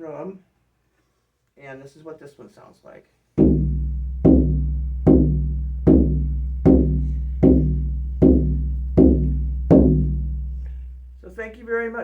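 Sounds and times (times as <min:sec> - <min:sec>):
frame drum booming: 0:03.4 - 0:11.4.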